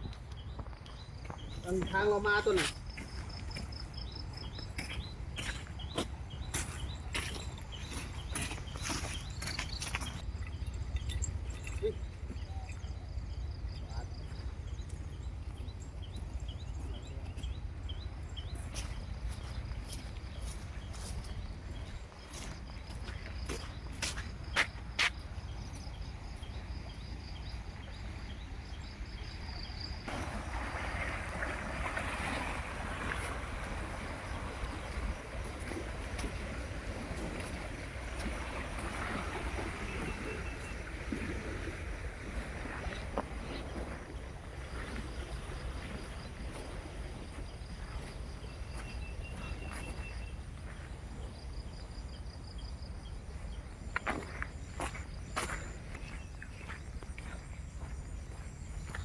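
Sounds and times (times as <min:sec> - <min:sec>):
insects chirping in trills: 0:00.0 - 0:59.0
wind rumble on microphone: 0:03.1 - 0:59.0
rushing floodwater: 0:29.8 - 0:51.3.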